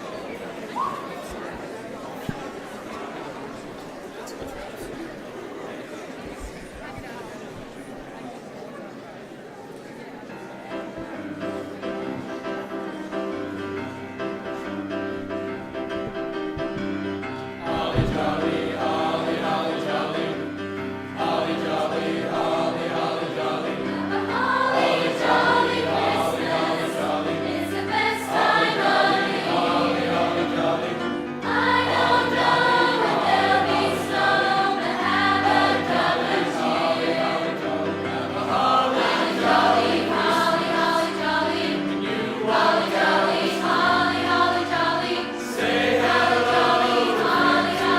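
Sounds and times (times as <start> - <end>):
instrumental accompaniment: 10.8 - 47.9
choir singing: 16.7 - 47.9.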